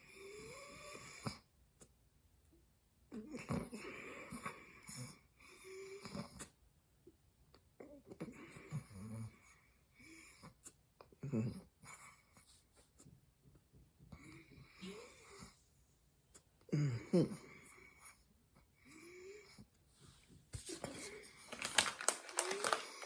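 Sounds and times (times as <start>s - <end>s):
cornstarch crunched and chewed: 21.4s - 23.0s.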